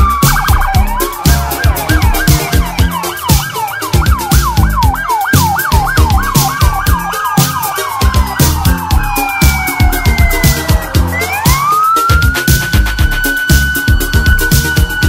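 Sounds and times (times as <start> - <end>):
music with steady beat: 0.0 - 15.0
police siren yelp and wail: 0.0 - 15.0.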